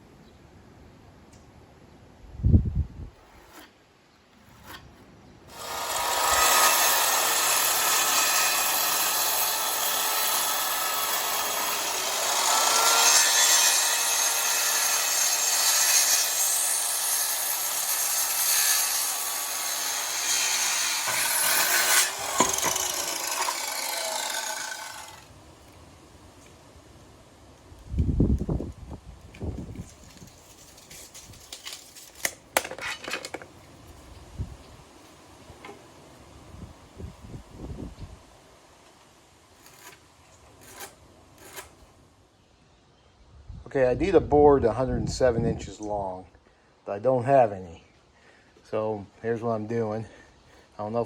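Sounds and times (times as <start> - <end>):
power saw cutting wood: 5.5 - 25.3, 39.6 - 40.0, 40.6 - 41.8.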